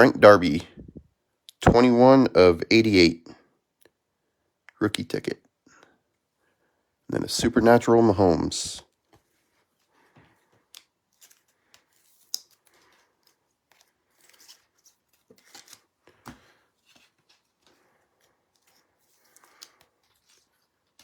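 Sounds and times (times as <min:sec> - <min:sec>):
trading cards handled: 0:10.6 - 0:17.8.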